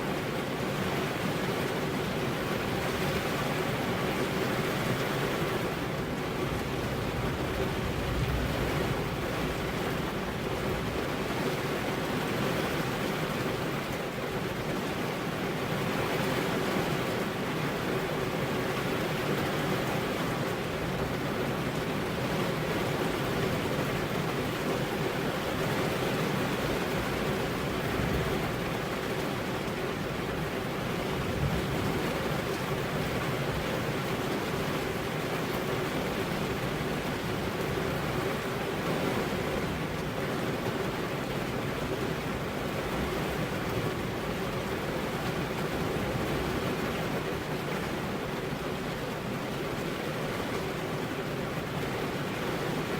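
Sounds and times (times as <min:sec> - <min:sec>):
steady rainfall: 0:00.0 - 0:52.9.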